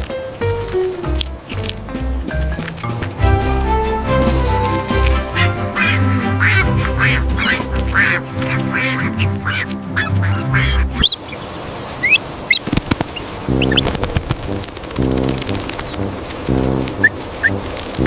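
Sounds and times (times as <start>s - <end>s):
background music with steady beat: 0.0s - 10.0s
duck quacking: 4.8s - 11.3s.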